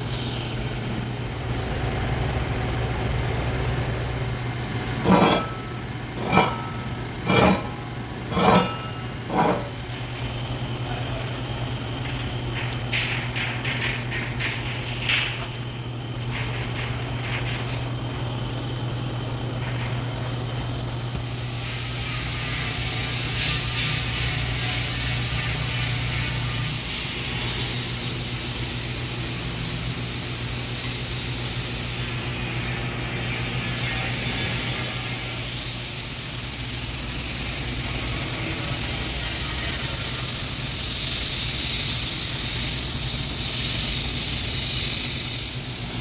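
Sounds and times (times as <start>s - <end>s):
low constant hum: 3.9s - 10.4s.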